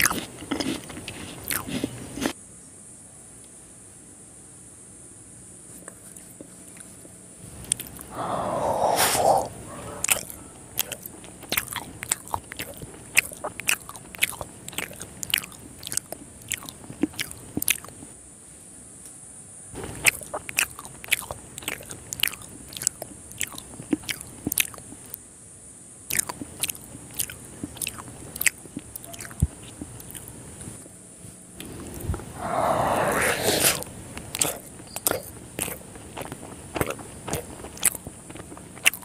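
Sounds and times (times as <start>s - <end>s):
biting and chewing sweet: 0.0s - 2.4s, 5.7s - 18.1s, 19.8s - 25.2s, 26.0s - 39.0s
wet mouth clicks and smacks: 7.6s - 8.1s, 10.0s - 18.1s, 26.1s - 30.3s, 33.6s - 39.0s
long wet mouth noise: 7.7s - 17.9s, 31.9s - 35.8s.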